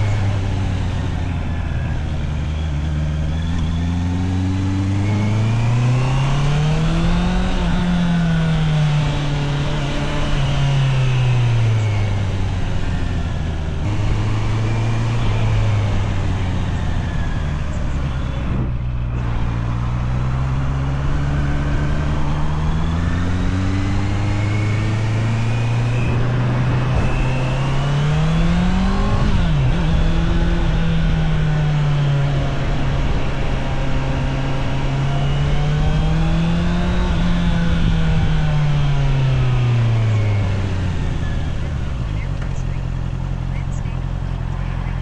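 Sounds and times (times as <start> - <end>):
motorcycle engine revving: 0.0 - 45.0
wind and road noise: 0.0 - 45.0.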